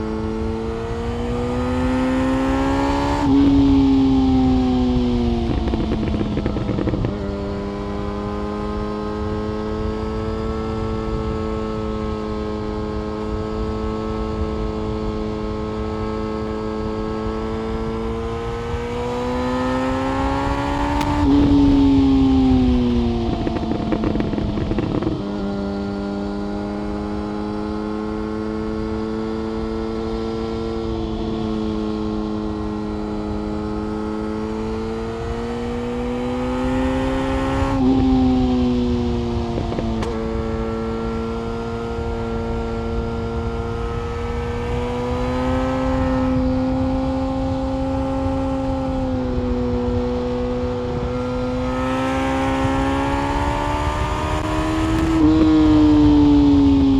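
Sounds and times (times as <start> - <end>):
motorcycle engine revving: 0.0 - 56.9
wind rushing: 18.2 - 26.7, 36.7 - 56.9.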